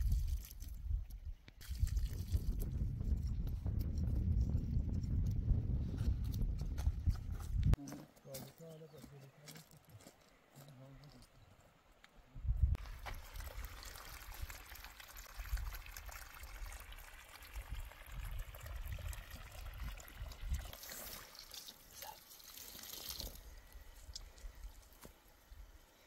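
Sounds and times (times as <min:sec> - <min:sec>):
water drips and splashes: 0:00.0 - 0:02.7, 0:12.8 - 0:25.5
water trickling and pouring: 0:00.0 - 0:02.8, 0:12.8 - 0:25.0.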